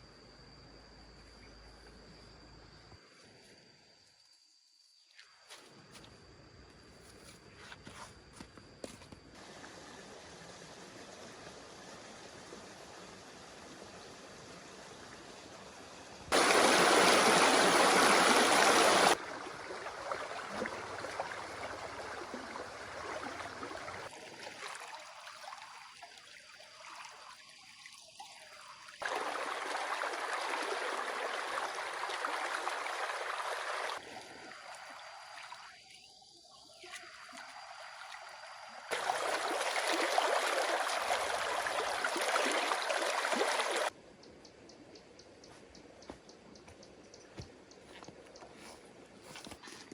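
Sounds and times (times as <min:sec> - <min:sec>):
running water rushing: 0:16.3 - 0:35.9, 0:36.7 - 0:43.9.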